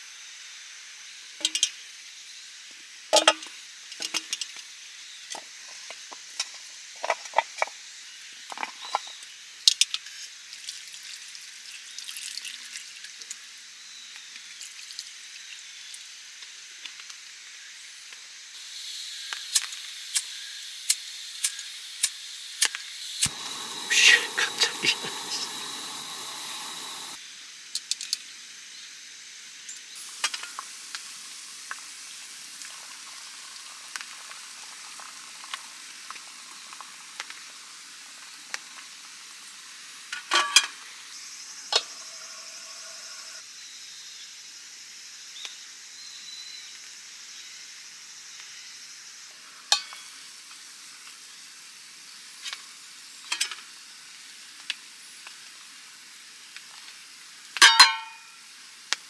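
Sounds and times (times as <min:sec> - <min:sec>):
food sizzling in a pan: 0:18.6 - 0:27.2, 0:28.5 - 0:43.4.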